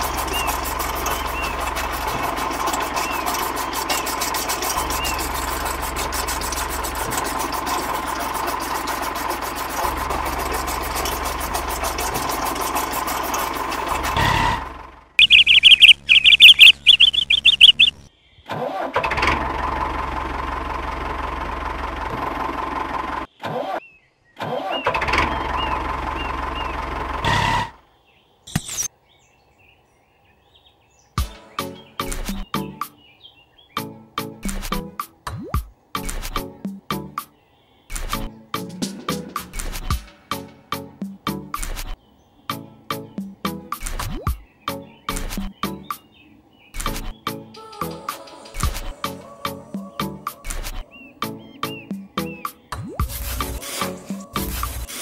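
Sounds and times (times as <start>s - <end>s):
small motor whining: 0.0s - 14.6s
shrill warbling tone: 15.2s - 18.1s.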